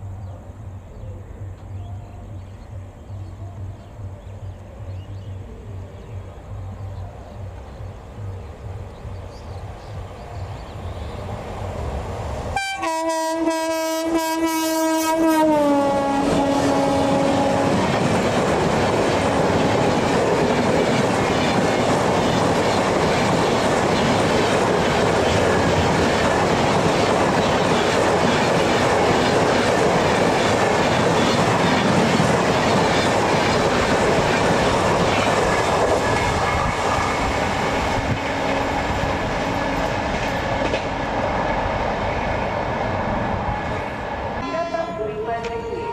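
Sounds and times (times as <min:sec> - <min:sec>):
train horn: 0:12.6 - 0:18.0, 0:38.0 - 0:41.1, 0:44.4 - 0:45.9.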